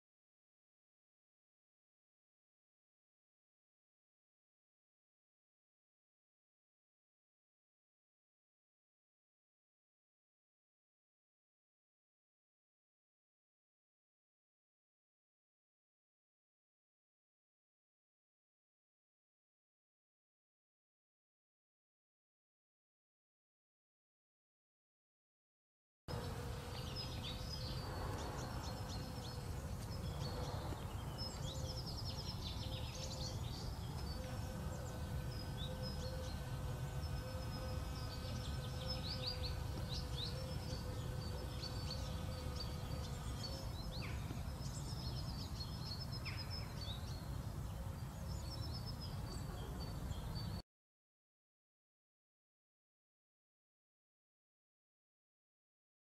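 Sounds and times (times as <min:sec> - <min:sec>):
faint steady hum: 0:26.1 - 0:50.6
small birds chirping: 0:26.1 - 0:50.6.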